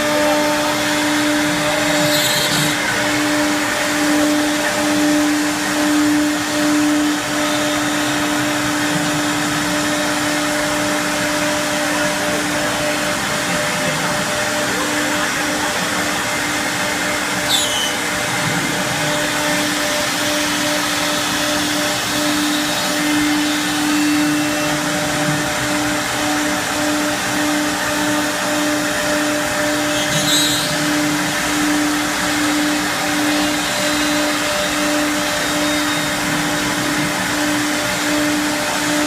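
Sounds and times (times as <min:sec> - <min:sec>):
wood router whining: 0:00.0 - 0:39.0
brief falling squeak: 0:17.5 - 0:18.0, 0:30.0 - 0:30.7.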